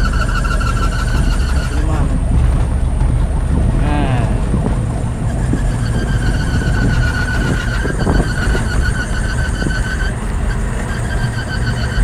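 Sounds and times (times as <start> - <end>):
vehicle driving rumble: 0.0 - 12.0
ambulance siren squeal: 5.3 - 12.0.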